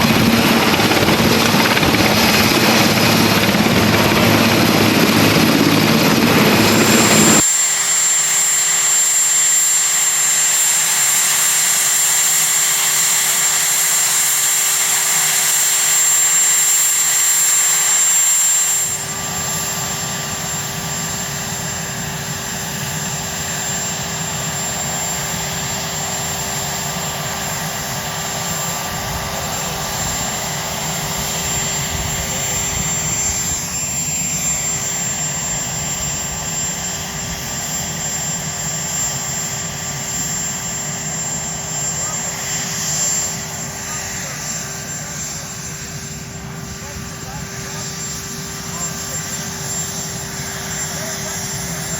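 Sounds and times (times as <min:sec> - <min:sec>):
helicopter turbine whine: 0:00.0 - 0:51.9.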